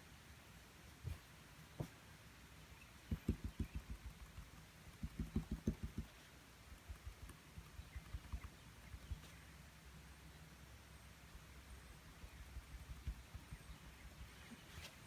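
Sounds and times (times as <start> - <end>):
paintbrush dabbing on canvas: 3.0 - 9.3.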